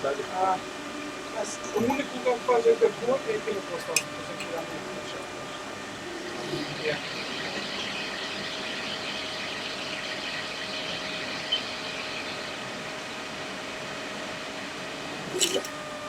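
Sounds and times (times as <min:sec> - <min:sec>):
small electric fan running: 0:00.0 - 0:16.0.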